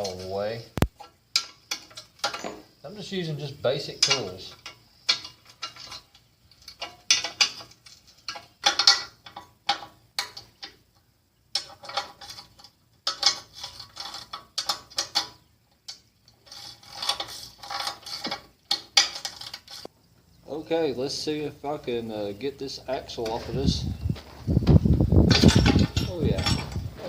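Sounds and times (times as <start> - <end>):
hand tools clinking on metal: 0.0 - 10.8, 11.5 - 19.9, 25.3 - 27.0.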